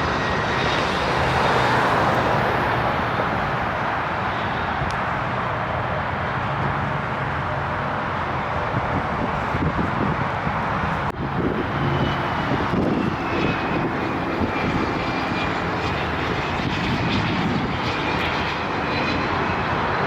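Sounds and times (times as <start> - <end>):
high engine whine: 0.0 - 20.0
jet airliner engine roar: 0.0 - 20.0.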